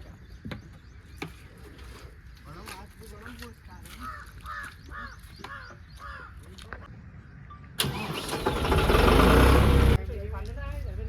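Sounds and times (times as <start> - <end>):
crow cawing: 4.0 - 6.4
engine rumbling: 7.1 - 11.0.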